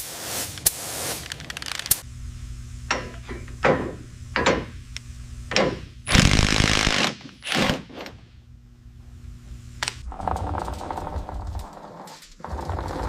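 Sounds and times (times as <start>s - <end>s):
loud hissing burst: 0.0s - 2.1s
steady low hum: 0.0s - 7.4s, 8.1s - 13.0s.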